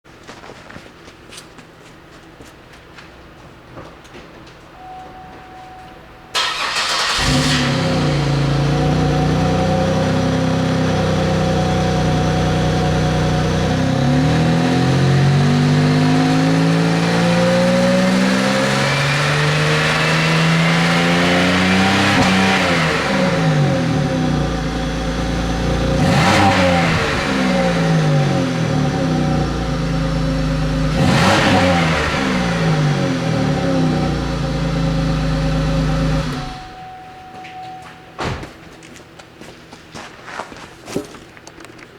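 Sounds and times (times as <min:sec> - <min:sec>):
car engine idling and revving: 0:06.4 - 0:36.8.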